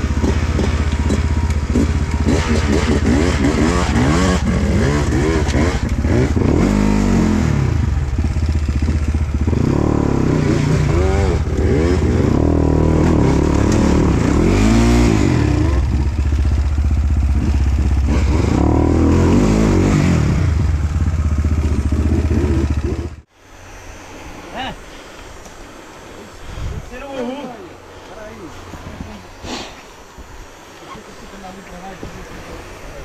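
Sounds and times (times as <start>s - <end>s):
dirt bike engine revving: 0.0s - 23.3s.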